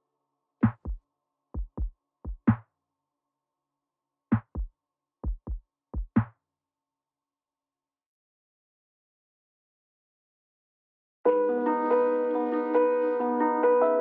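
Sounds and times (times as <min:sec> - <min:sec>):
drum machine beat: 0:00.6 - 0:01.0, 0:01.6 - 0:02.6, 0:04.3 - 0:06.3.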